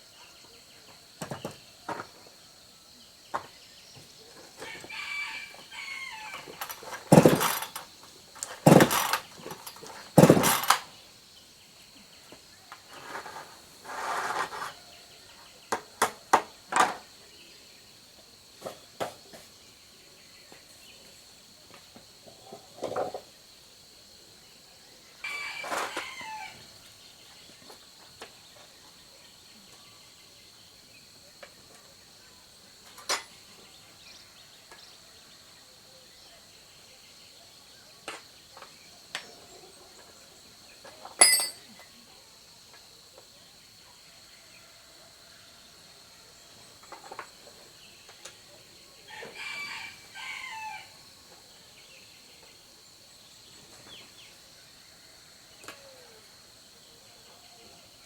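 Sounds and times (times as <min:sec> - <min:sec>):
high insect drone: 0:02.6 - 0:37.9
tools clicking and tapping: 0:41.2 - 0:41.6.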